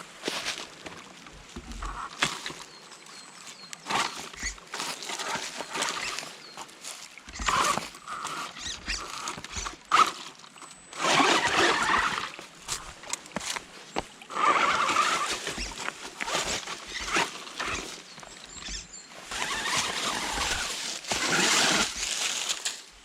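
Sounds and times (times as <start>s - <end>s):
toy car crunching over gravel: 3.6s - 10.3s, 11.0s - 13.6s, 14.3s - 23.0s
electric motor whining: 7.3s - 10.2s, 10.9s - 13.0s, 14.3s - 22.3s.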